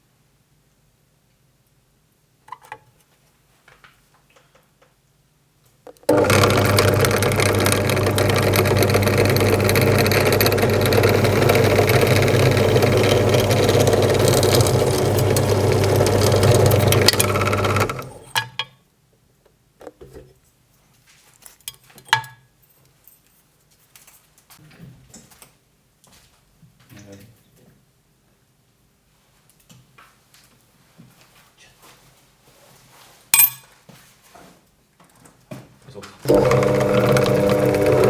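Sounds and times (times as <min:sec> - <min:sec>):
electric drill running: 0:06.1 - 0:18.4, 0:36.3 - 0:38.0.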